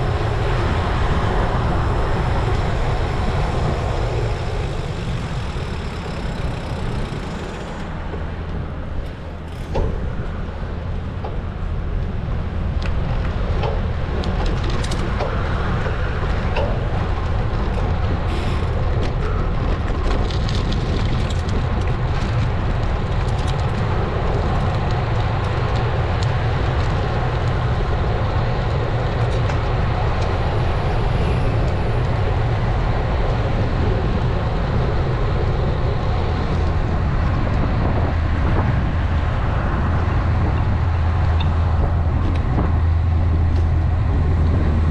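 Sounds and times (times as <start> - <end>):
tyre and road noise: 0.0 - 44.9
wind rushing over microphone: 0.0 - 44.9.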